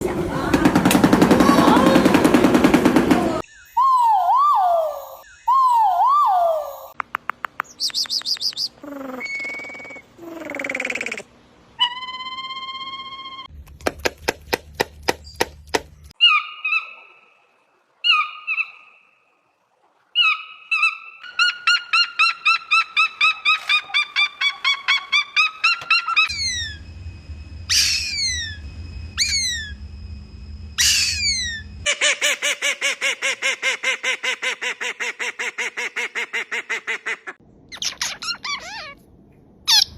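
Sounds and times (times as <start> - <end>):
fast repeated bird notes: 7.3 - 11.3, 27.6 - 30.0, 30.8 - 32.0
sharp downward-sliding bird calls: 20.2 - 27.0, 27.6 - 30.0, 30.7 - 33.7
low hum: 26.2 - 32.0.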